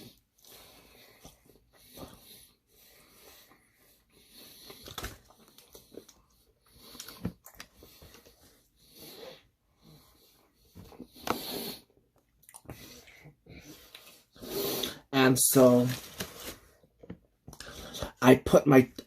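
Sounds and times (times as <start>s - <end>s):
wet chewing: 4.6s - 8.4s, 12.4s - 12.9s.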